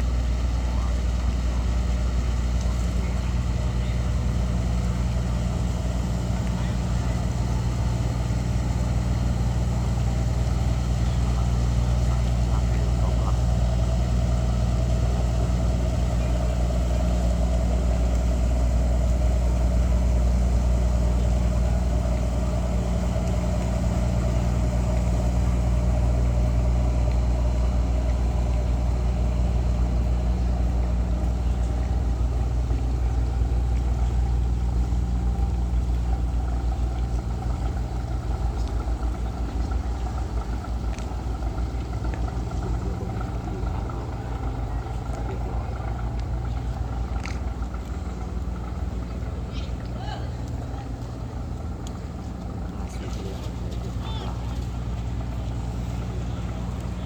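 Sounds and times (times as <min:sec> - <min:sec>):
engine humming: 0:00.0 - 0:57.0.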